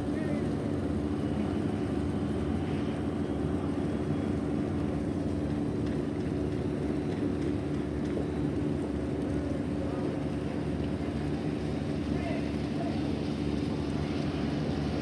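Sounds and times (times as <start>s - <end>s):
ship engine droning: 0.0s - 15.0s.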